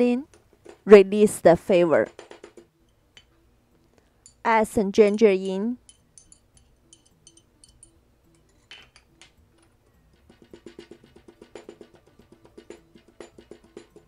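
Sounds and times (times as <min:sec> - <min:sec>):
spoon clinking on stone mortar: 0:05.1 - 0:14.0
pestle pounding in stone mortar: 0:10.1 - 0:14.0.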